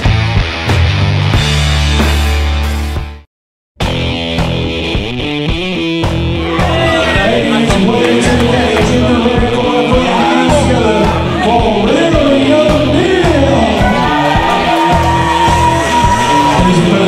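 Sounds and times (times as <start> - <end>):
loud music with singing: 4.2 - 17.0.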